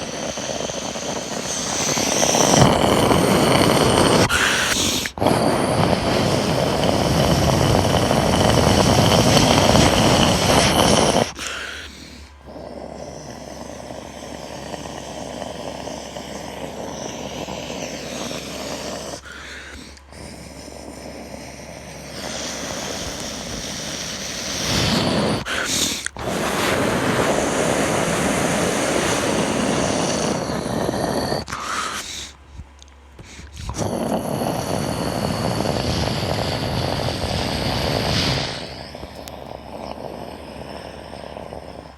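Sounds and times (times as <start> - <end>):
jet engine noise: 0.0 - 20.3, 22.1 - 32.4, 33.2 - 41.9.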